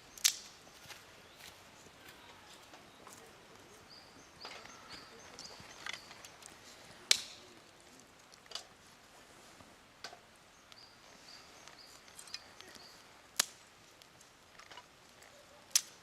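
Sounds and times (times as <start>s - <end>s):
faint high bird chirps: 0.7s - 6.4s.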